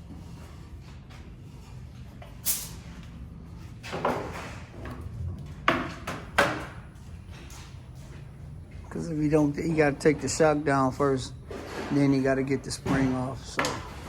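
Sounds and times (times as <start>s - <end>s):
low shop hum: 0.0s - 14.0s.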